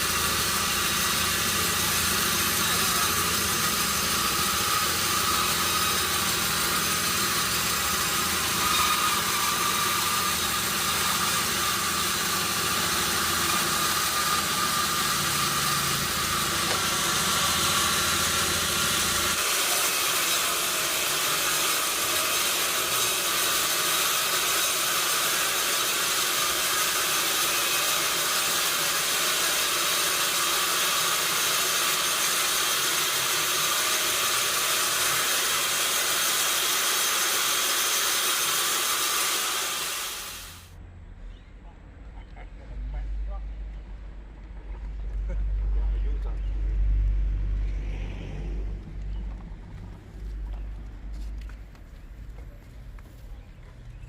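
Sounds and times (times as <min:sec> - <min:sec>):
sawmill machinery running: 0:00.0 - 0:40.8
low engine-like rumble: 0:40.8 - 0:54.0.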